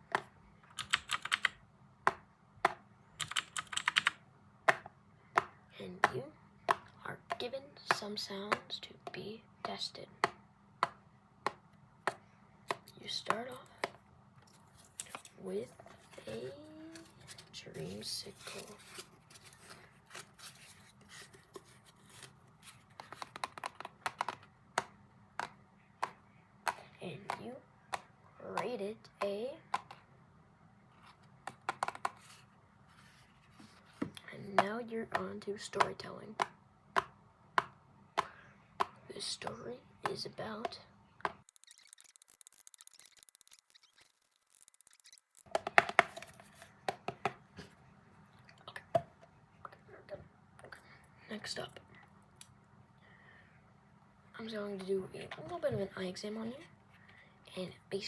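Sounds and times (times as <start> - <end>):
sharp clicks and taps: 23.0 - 28.7.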